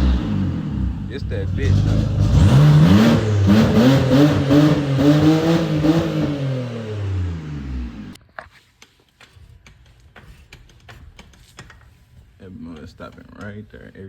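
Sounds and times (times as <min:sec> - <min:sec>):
car engine revving: 0:00.0 - 0:08.2
scattered clicks and knocks: 0:08.2 - 0:14.0.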